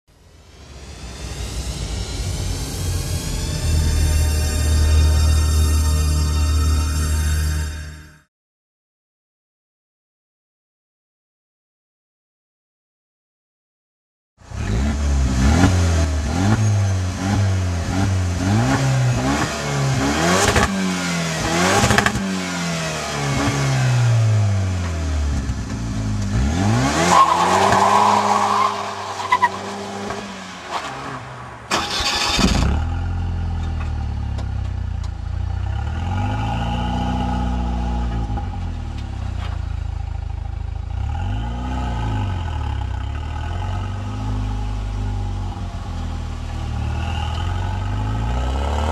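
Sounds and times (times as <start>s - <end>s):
car engine revving: 14.5s - 48.9s.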